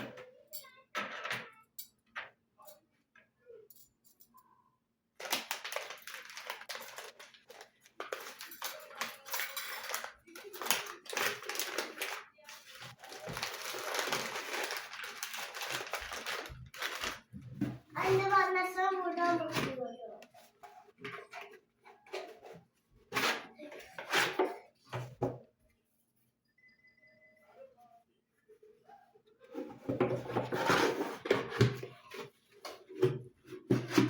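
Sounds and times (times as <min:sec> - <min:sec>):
material crackling and crinkling: 0:05.2 - 0:18.4.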